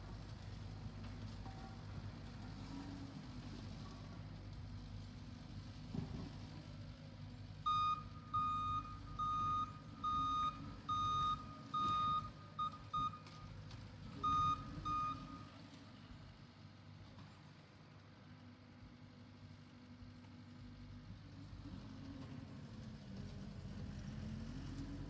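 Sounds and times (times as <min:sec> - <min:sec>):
diesel engine rumble: 0:00.0 - 0:25.0
reversing alarm beeping: 0:07.7 - 0:13.4, 0:14.2 - 0:15.5.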